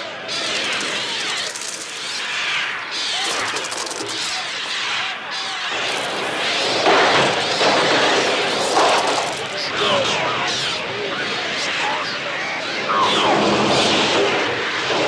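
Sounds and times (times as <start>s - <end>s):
rapid fluttering rattle: 0.3s - 5.2s, 5.8s - 9.7s.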